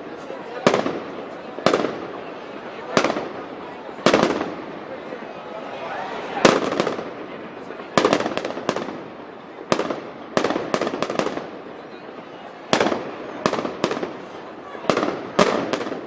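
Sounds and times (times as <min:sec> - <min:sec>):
crowd noise: 0:00.0 - 0:16.0
loud bangs with echo: 0:09.7 - 0:11.6, 0:14.9 - 0:16.0.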